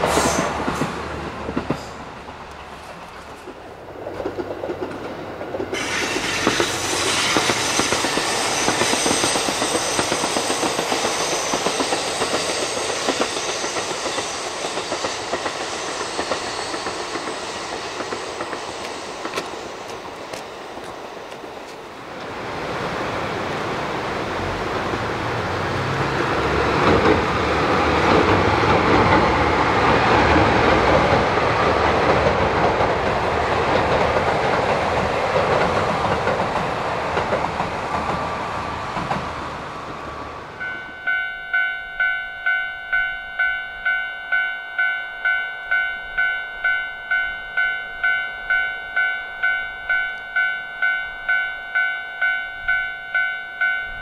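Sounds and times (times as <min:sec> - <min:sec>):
train wheels clattering on track: 0:00.0 - 0:22.4, 0:24.4 - 0:44.4
electronic ding: 0:40.6 - 0:54.0.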